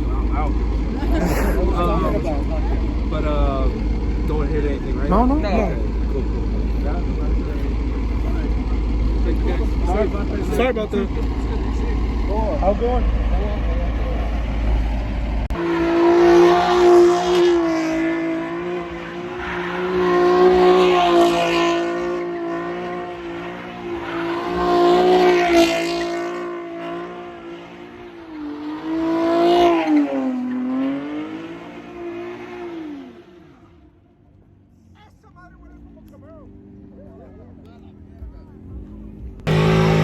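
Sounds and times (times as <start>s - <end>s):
car engine at high revs: 0.0s - 34.5s, 35.6s - 40.0s
tire squeal: 18.8s - 20.3s, 23.2s - 33.1s.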